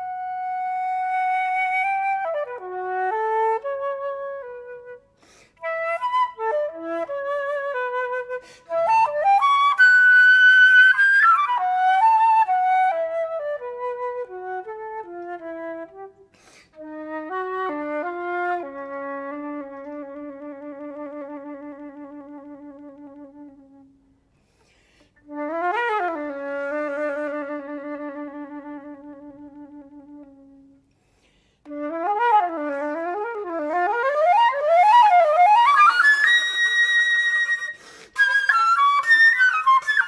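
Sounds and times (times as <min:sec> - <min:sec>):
solo flute melody: 0:00.0 - 0:24.2, 0:25.2 - 0:30.9, 0:31.6 - 0:40.0.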